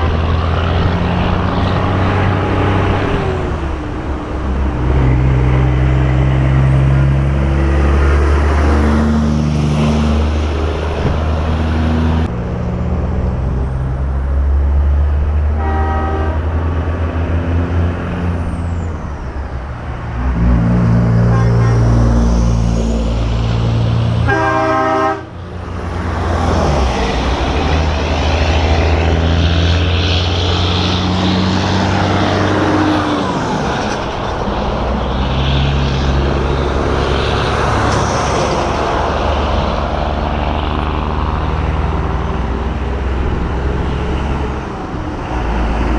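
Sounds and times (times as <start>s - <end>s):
truck diesel engines rumbling: 0.0s - 45.9s
air horn blast: 15.6s - 16.5s, 21.2s - 22.0s, 24.2s - 25.3s.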